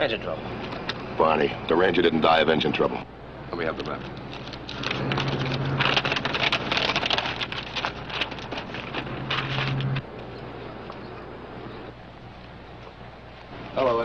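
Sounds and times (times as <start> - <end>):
steady low hum: 0.0 - 14.0
paper map rustling: 3.7 - 10.0.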